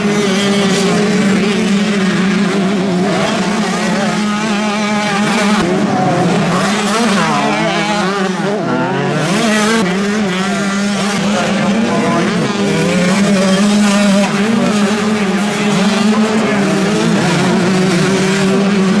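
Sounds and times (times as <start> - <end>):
motocross bikes revving: 0.0 - 19.0.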